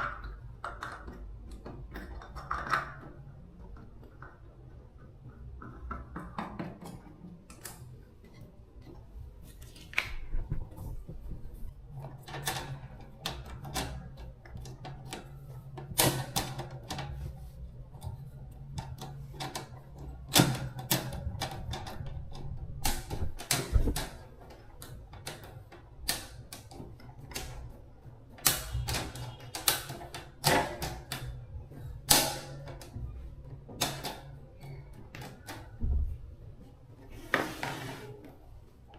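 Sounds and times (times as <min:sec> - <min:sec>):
small tools clicking and tapping: 0:00.0 - 0:09.0.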